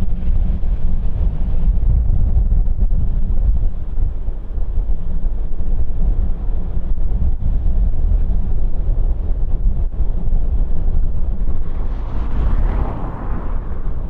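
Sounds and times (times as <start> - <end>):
wind buffeting microphone: 0.0 - 14.0
jet engines rumbling: 9.3 - 14.0.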